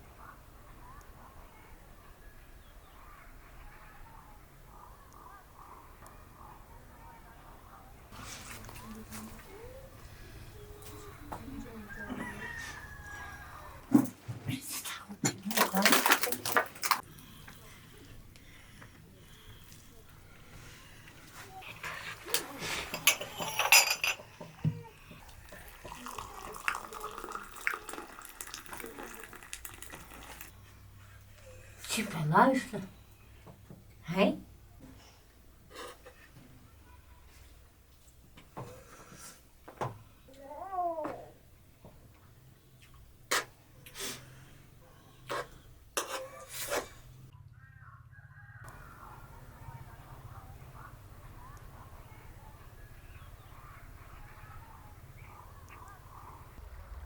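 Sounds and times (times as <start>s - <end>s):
water pouring and splashing: 15.4s - 17.0s, 25.2s - 30.5s
dishes clinking: 22.4s - 24.9s.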